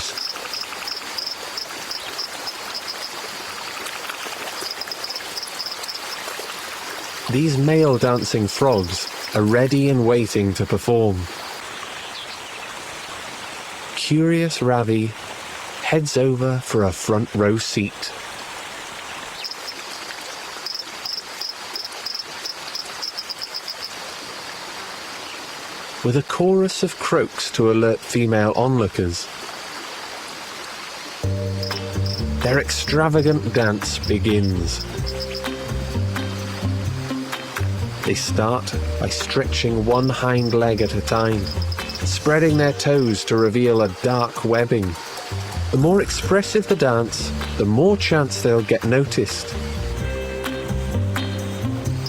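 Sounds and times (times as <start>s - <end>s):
small animals chirping: 0.0s - 3.2s, 4.5s - 6.3s, 7.8s - 9.4s, 19.4s - 19.8s, 20.6s - 23.9s, 31.5s - 35.5s, 39.9s - 44.4s
steady background hiss: 0.0s - 29.8s
stream water rushing: 0.0s - 52.0s.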